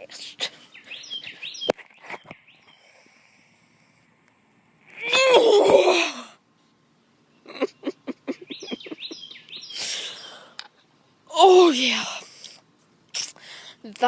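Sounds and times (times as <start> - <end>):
sharp clicks and chirping tones: 8.5 - 9.8.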